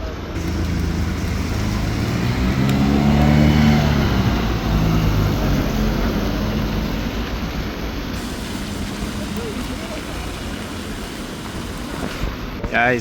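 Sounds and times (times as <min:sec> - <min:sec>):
rain hissing on wet road: 0:00.3 - 0:13.0
vehicle driving past: 0:00.4 - 0:07.6.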